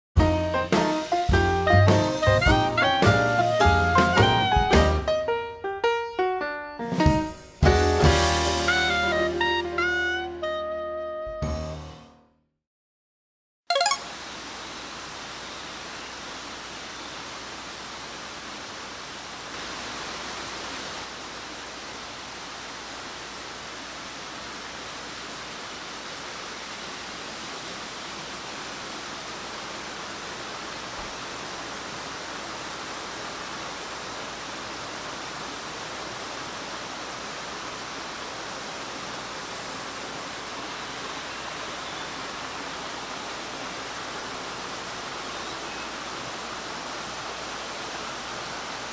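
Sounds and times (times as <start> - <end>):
waterfall rushing: 13.7 - 48.9.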